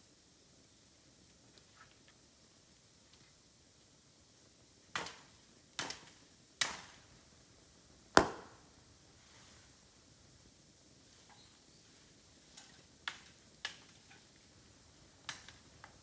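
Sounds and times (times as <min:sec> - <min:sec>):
bamboo cracking: 0:08.2 - 0:08.6.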